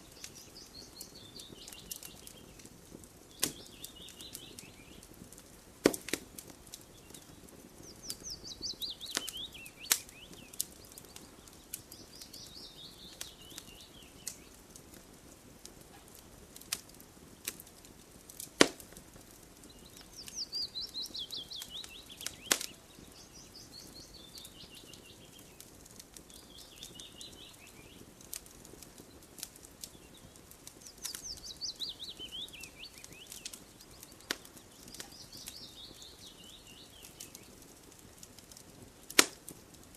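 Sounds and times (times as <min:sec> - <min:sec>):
campfire wood crackling: 0:00.0 - 0:39.9
songbird trilling: 0:07.9 - 0:10.6, 0:19.7 - 0:25.3, 0:30.9 - 0:37.4.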